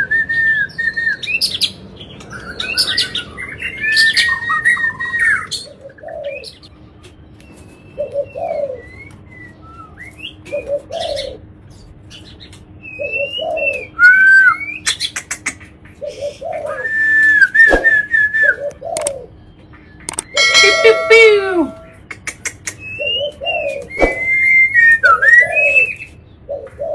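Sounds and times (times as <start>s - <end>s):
bird singing whistled notes: 22.8s - 26.1s.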